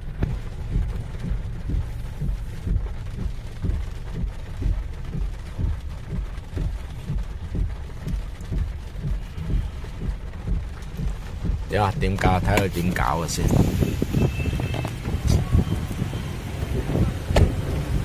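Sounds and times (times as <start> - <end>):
heavy rain hissing: 0.0 - 18.0
wind gusts buffeting microphone: 9.9 - 18.0.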